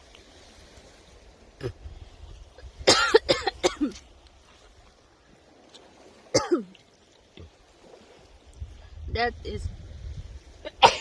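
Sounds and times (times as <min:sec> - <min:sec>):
man coughing: 0:02.9 - 0:03.9, 0:10.8 - 0:11.0.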